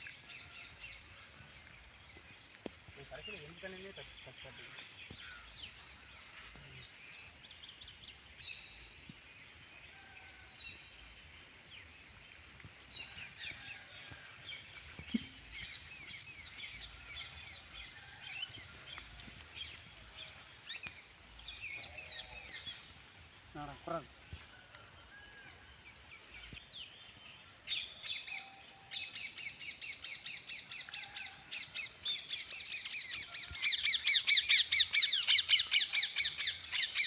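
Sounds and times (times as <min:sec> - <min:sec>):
birds chirping: 0:00.0 - 0:37.0
faint outdoor background: 0:00.0 - 0:37.0.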